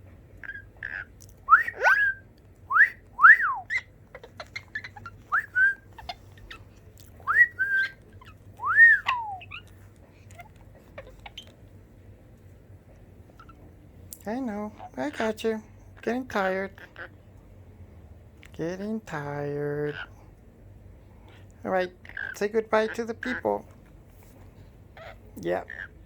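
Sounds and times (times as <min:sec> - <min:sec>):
parrot whistling: 0:00.4 - 0:06.6, 0:07.2 - 0:09.7.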